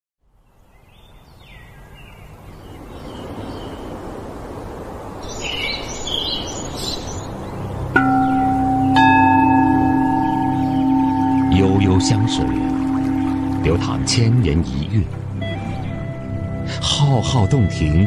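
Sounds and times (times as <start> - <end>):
birds chirping: 0.4 - 17.9
soft rushing ambience: 2.3 - 16.6
bell-like tone ringing: 8.0 - 14.9.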